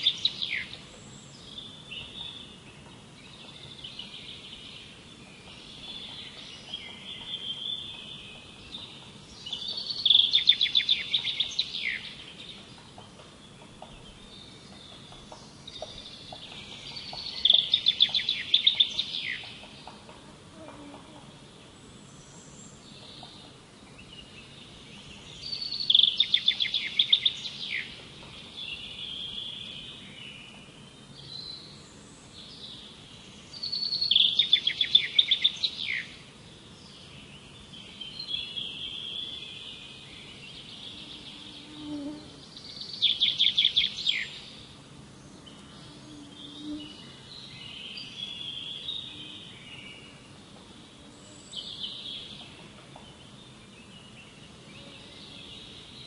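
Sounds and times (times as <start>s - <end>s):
soft bird chirps: 0.0s - 21.2s, 36.8s - 56.0s
songbird rapid song phrase: 0.0s - 56.0s.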